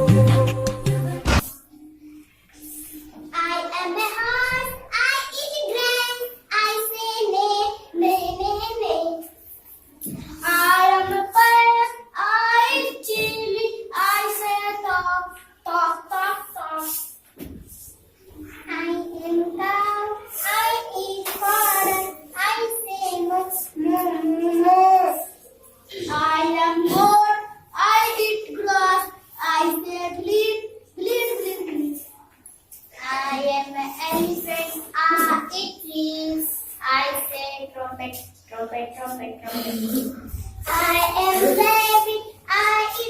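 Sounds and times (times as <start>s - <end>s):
child singing high-pitched syllables: 40.2s - 43.0s.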